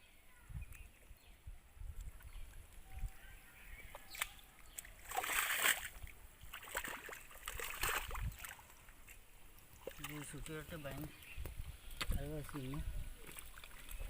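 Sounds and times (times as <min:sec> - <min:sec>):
hands splashing in muddy water: 0:03.8 - 0:09.2.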